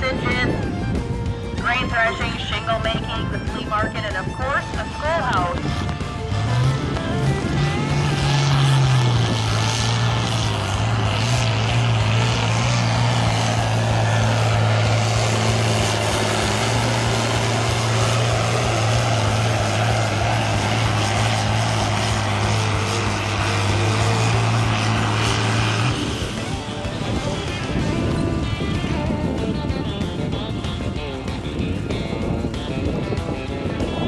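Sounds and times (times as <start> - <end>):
tractor engine running hard: 0.0 - 34.0.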